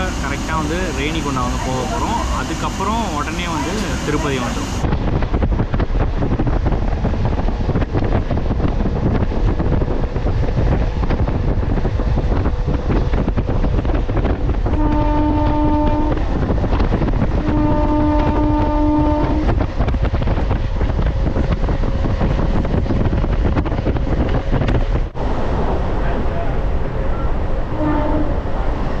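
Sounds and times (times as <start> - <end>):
train horn blasts: 0.0 - 4.8, 14.6 - 16.3, 17.3 - 19.6, 27.7 - 28.6
electric train rumbling at speed: 0.0 - 29.0
wind buffeting microphone: 3.5 - 29.0.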